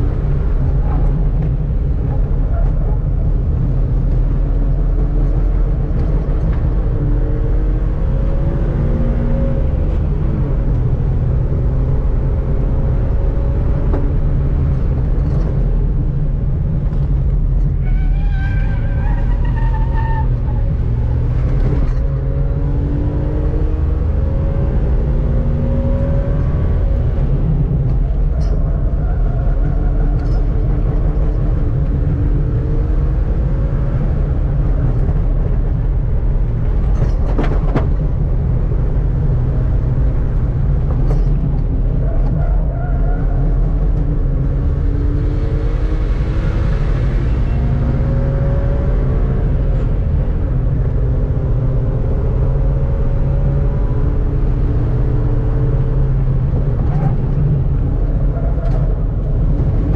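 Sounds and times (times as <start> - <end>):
road noise: 0.0 - 59.9
car engine accelerating hard: 18.7 - 59.9.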